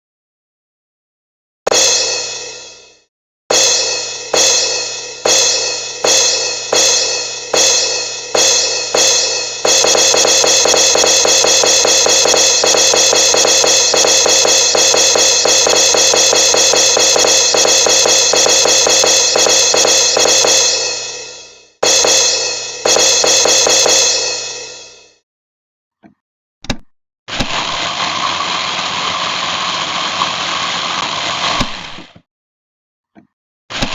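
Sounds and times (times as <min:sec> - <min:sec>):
ringing metallic percussion: 0:01.7 - 0:02.9, 0:03.5 - 0:25.1.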